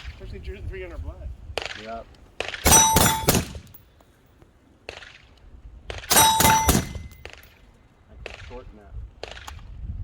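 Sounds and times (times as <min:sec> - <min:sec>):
gunshots: 0:02.4 - 0:03.8, 0:06.1 - 0:07.5
steel targets clanging: 0:02.6 - 0:03.9, 0:06.1 - 0:07.6.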